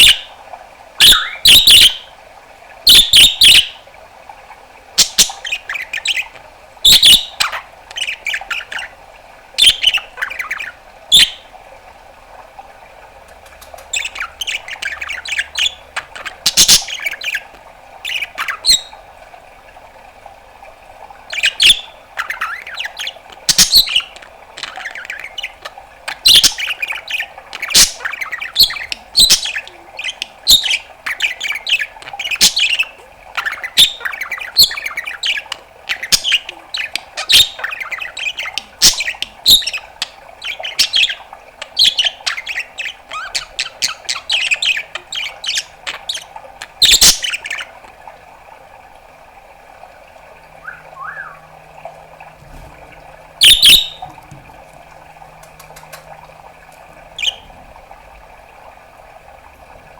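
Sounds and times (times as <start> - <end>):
budgerigar chattering: 1.0 - 2.0, 21.3 - 47.8, 50.6 - 51.5, 53.4 - 54.4
budgerigar chirps and squawks: 1.0 - 2.0, 13.9 - 17.4, 21.3 - 47.8, 50.6 - 51.5, 52.5 - 54.3, 57.2 - 57.5.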